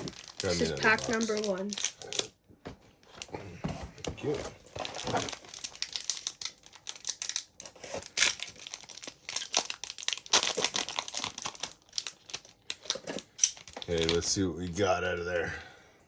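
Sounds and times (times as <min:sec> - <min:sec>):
plastic wrapper tearing and crinkling: 0:00.0 - 0:02.3, 0:04.6 - 0:14.4.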